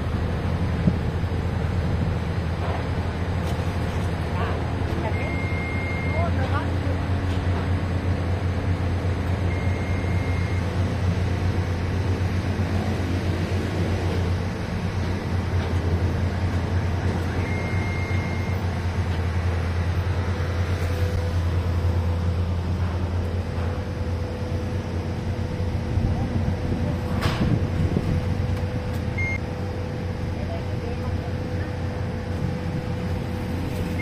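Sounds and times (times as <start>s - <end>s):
large engine humming: 0.0s - 34.0s
high beeps: 5.0s - 6.3s, 9.5s - 10.7s, 17.3s - 18.7s, 29.2s - 29.4s.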